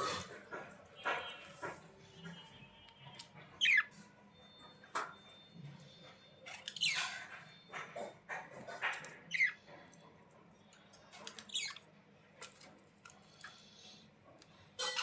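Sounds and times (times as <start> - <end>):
budgerigars chirping: 3.6 - 3.9, 8.9 - 9.6.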